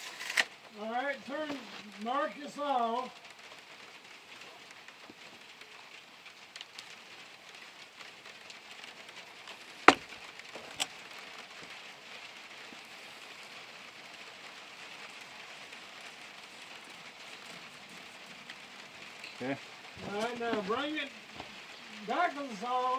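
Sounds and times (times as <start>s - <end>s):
faint hiss: 0.0s - 22.9s
sharp knocks: 9.9s - 10.1s.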